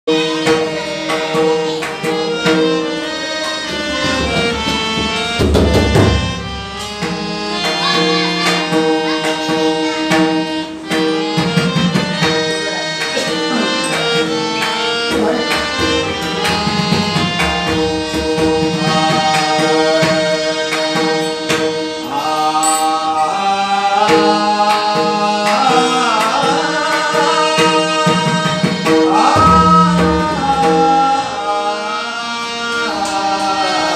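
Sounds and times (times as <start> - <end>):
hand percussion: 0.1 - 33.9
harmonium melody and drone: 0.1 - 33.9
tabla: 0.1 - 33.9
person singing: 13.2 - 33.9.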